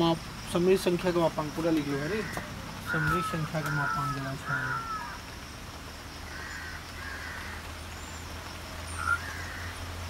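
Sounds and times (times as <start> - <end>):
short bird calls: 8.9 - 9.8.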